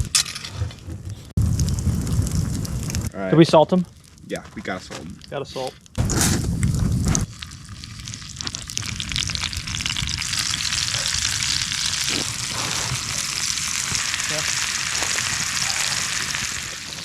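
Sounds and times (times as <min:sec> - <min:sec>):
steaks sizzling in a pan: 0:10.1 - 0:17.0.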